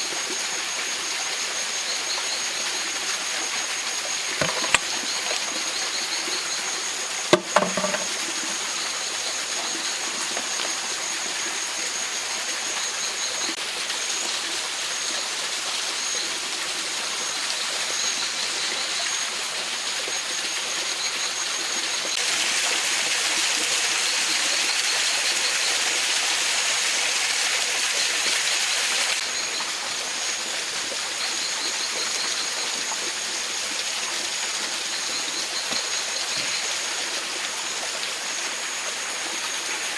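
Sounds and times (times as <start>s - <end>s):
sharp knock: 7.4s - 8.1s.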